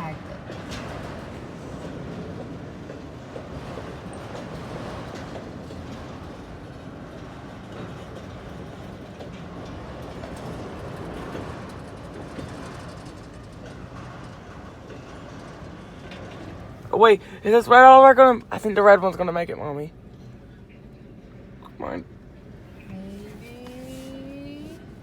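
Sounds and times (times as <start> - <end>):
freight cars rumbling on track: 0.0 - 20.5
wheels clicking over rail joints: 0.3 - 18.3.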